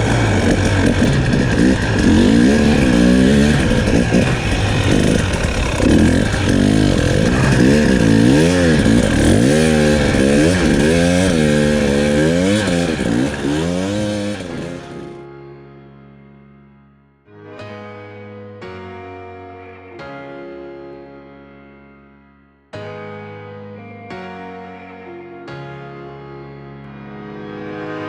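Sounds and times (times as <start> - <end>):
dirt bike engine revving: 0.0 - 15.2.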